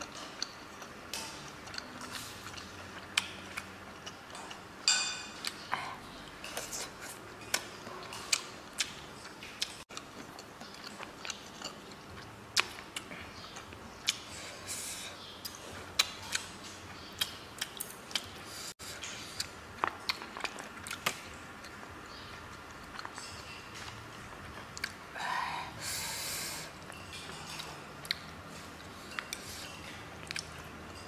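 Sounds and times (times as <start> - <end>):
person chewing: 0.0 - 31.0.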